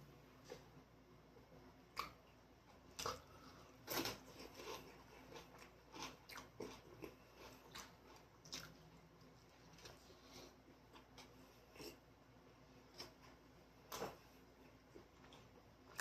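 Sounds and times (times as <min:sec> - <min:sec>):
person chewing crunchy food: 0:02.9 - 0:12.0.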